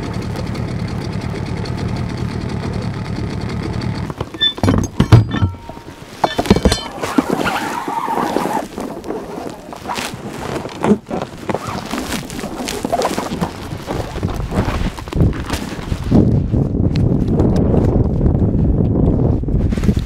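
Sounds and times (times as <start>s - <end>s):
anchor and rope knocking: 3.9s - 9.1s
wind noise on microphone: 5.0s - 20.0s.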